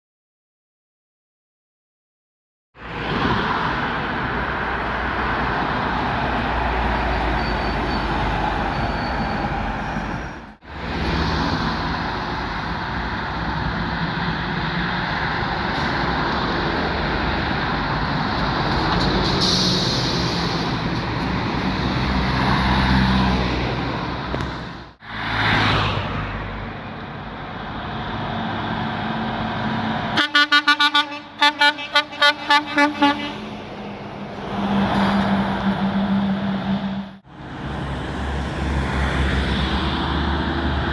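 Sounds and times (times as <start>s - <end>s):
heavy trucks passing: 2.8s - 40.9s
truck horn short blasts: 30.2s - 33.4s.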